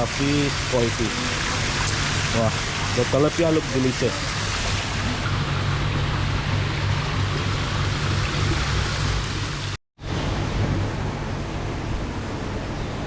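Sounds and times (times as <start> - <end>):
water splashing into a pond: 0.0 - 9.8
low hum: 4.3 - 12.6.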